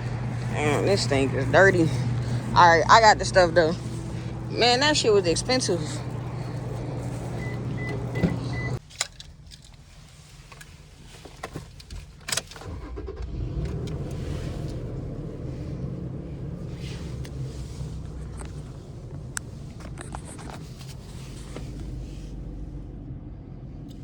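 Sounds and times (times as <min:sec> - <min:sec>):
low steady rumble: 0:00.0 - 0:24.0
vehicle low hum: 0:00.0 - 0:24.0
high electronic beeps: 0:07.4 - 0:08.8.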